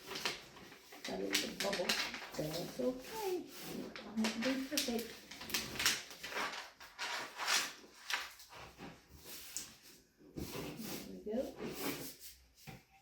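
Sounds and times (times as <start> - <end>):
hands rubbing contact paper: 0.0 - 12.6.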